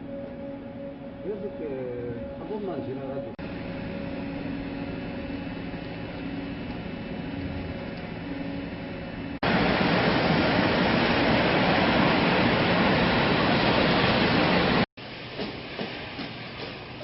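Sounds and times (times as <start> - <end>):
industrial machinery humming: 0.0 - 17.0
loud steady rushing noise: 6.8 - 14.9.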